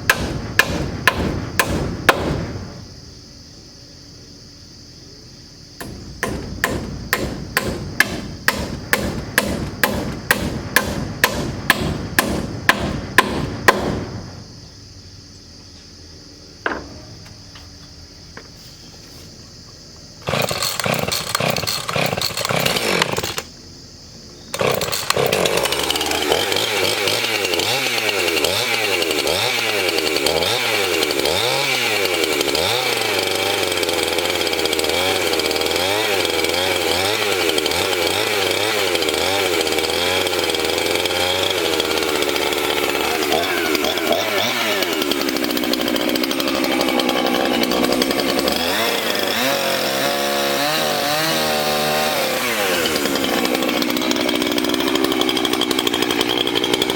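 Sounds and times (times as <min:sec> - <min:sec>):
hammer driving nails: 0:00.1 - 0:02.5, 0:05.8 - 0:14.1
power saw cutting: 0:05.8 - 0:14.0, 0:20.2 - 0:23.5, 0:24.5 - 0:56.9.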